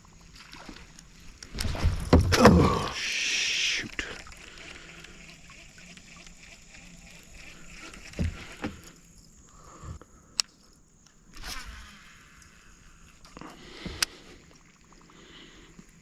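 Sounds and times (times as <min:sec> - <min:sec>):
gear thumping in a kayak: 0:00.6 - 0:10.0.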